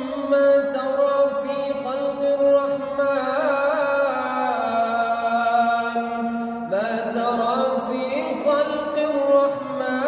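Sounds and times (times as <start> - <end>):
person chanting recitation: 0.0 - 10.0.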